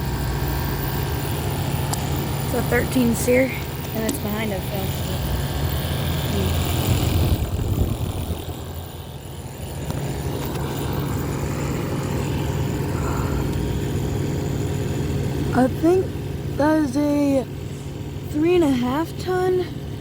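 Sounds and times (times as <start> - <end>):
air conditioner humming: 0.0 - 20.0
rush of noise: 5.1 - 14.0.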